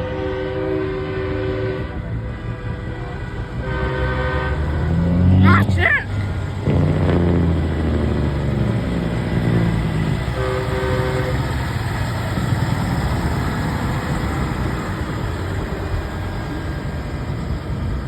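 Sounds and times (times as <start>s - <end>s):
truck air horns blowing: 0.0s - 7.4s, 9.3s - 12.5s
diesel engine rumble: 0.0s - 18.0s.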